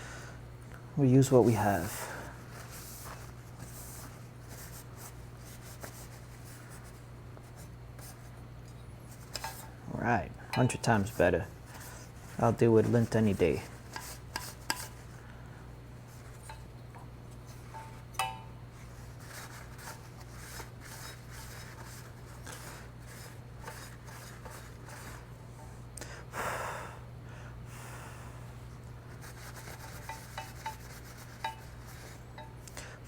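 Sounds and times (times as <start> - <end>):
steady low hum: 0.0 - 33.0
cloth rubbing and scrubbing: 29.1 - 32.3.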